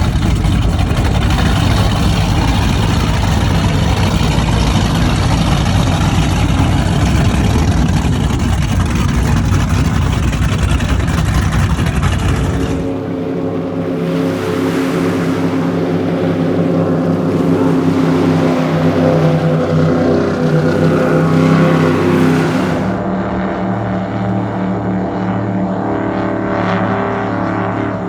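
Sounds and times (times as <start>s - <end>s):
powerboat engines running loud: 0.0s - 28.0s
rush of water and wind: 0.0s - 28.0s.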